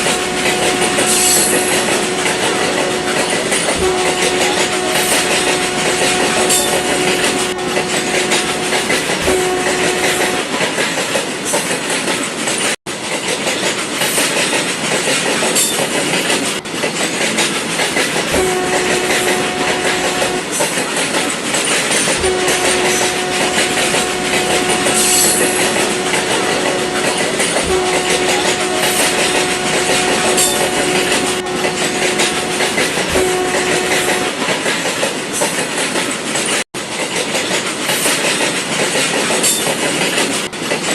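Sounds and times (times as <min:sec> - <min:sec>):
train horn tone: 0:00.0 - 0:11.0, 0:18.1 - 0:21.0, 0:21.7 - 0:35.0
model train rattling on track: 0:00.0 - 0:40.9.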